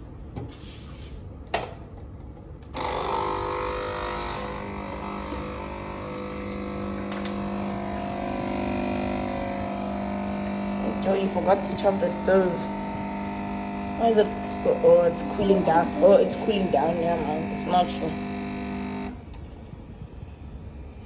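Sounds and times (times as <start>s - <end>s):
stove cooling fan humming: 1.4s - 19.6s.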